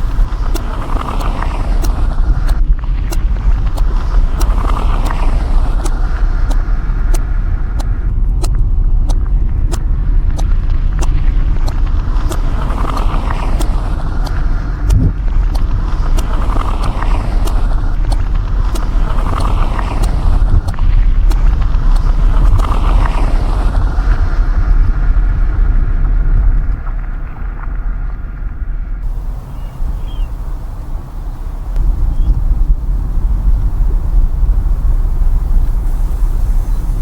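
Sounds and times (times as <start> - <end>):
road and engine rumble in car: 0.0 - 37.0
faint ticks: 29.0 - 37.0
tyre noise: 29.0 - 37.0.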